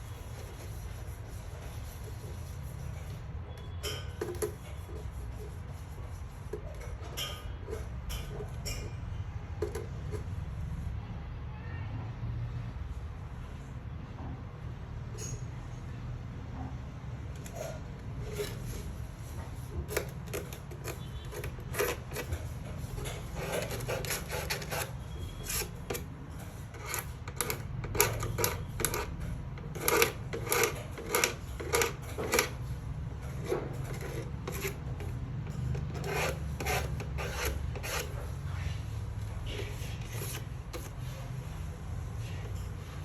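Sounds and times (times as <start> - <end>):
scraping strokes: 17.4 - 43.0.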